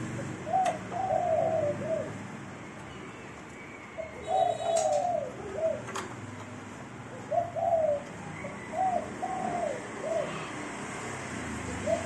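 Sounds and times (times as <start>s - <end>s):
bird cooing: 0.1s - 2.2s, 3.9s - 6.0s, 7.1s - 10.6s, 11.7s - 12.0s.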